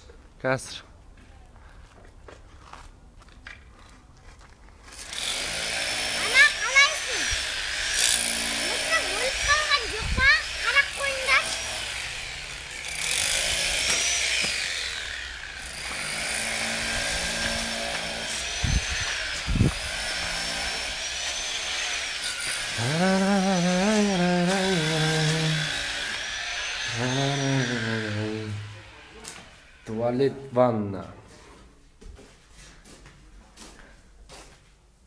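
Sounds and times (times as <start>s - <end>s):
power tool motor whine: 5.0s - 30.0s.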